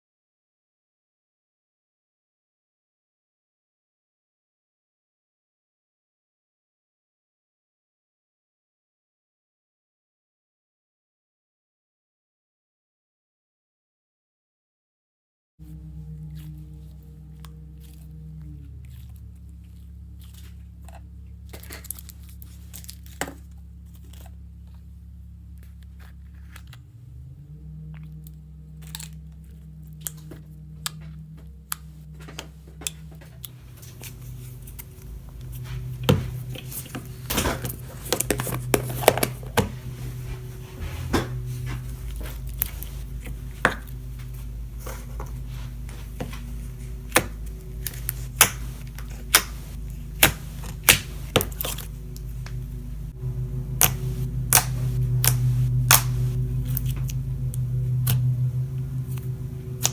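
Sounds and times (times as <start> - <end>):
low drone: 15.6 - 59.9
crinkling and tearing: 18.9 - 24.9, 31.7 - 59.9.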